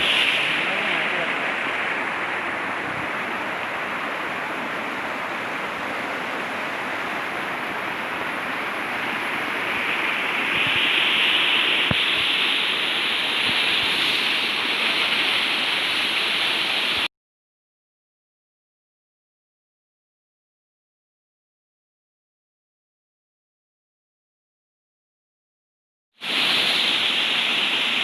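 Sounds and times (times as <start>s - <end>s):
waterfall rushing: 0.0s - 17.1s, 26.2s - 28.0s.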